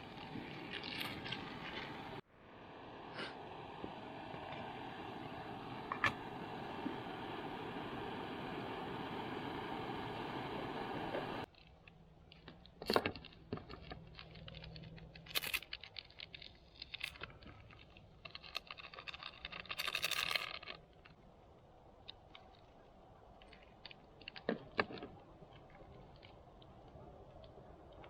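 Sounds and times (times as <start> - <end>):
small objects clicking and rustling: 0.0 - 2.2, 11.5 - 21.3, 22.0 - 28.0.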